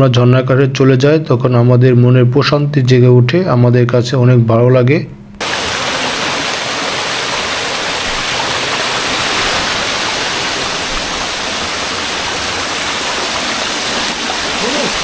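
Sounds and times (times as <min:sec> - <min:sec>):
stream flowing over rocks: 0:05.4 - 0:15.0.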